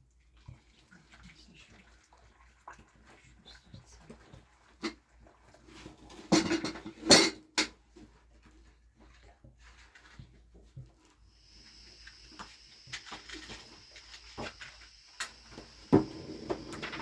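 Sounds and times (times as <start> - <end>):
faint scrapes and taps: 7.6 - 17.0
hard objects clattering: 15.9 - 17.0.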